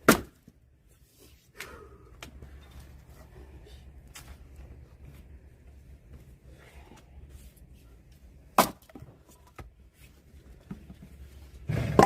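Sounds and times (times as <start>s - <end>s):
axe splitting logs: 0.0s - 0.5s, 8.6s - 9.1s, 11.8s - 12.0s.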